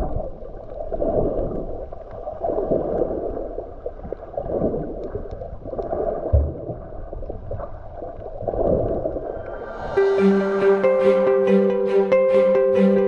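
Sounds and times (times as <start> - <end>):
muffled water sloshing: 0.0 - 10.1
plucked-string music: 9.7 - 13.0.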